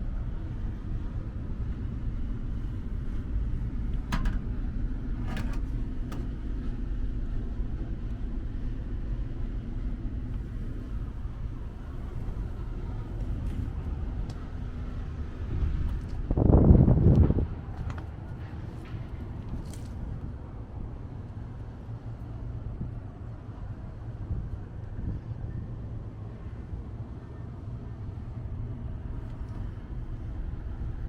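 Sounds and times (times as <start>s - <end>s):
truck engine idling: 0.0s - 22.4s.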